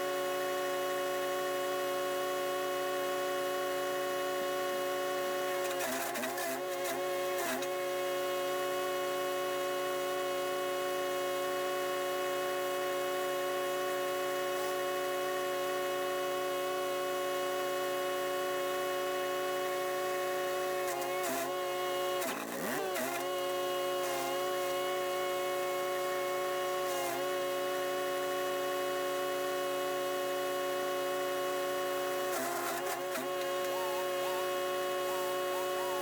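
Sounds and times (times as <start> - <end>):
wood chipper engine running: 18.9 - 28.1, 30.6 - 36.0.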